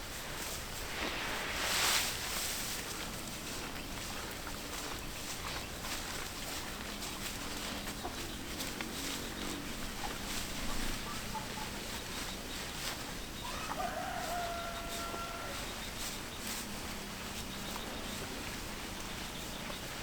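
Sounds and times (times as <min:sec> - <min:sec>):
rooster crowing: 0:13.4 - 0:16.1.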